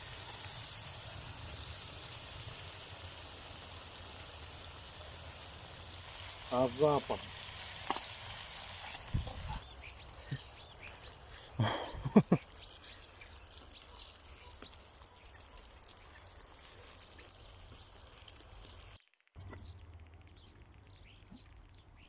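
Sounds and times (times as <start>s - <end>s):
food sizzling in a pot: 0.0s - 19.0s
birds chirping: 4.0s - 18.8s, 19.4s - 22.0s.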